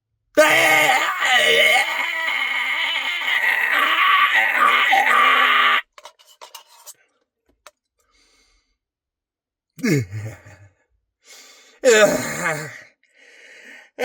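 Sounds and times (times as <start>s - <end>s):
man's wordless vocal cry: 0.4s - 5.8s, 11.8s - 12.8s.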